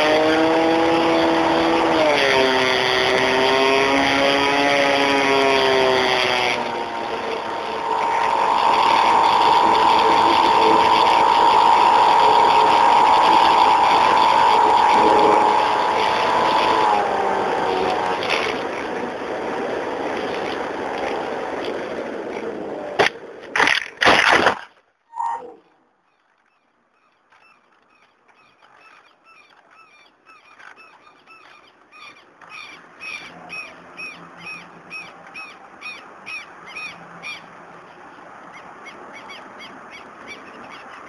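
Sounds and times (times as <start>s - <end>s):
model plane motor whine: 0.0s - 22.9s.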